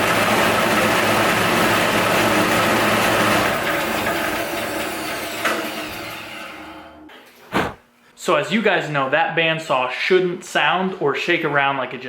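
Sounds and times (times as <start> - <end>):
bandsaw motor running: 0.0 - 6.2.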